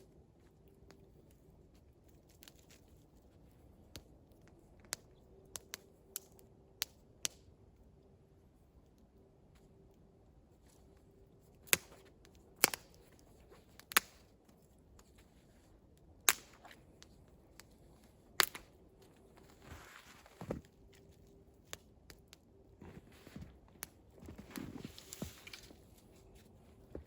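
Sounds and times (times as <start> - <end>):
soft rustle: 8.6 - 21.8, 22.6 - 27.0.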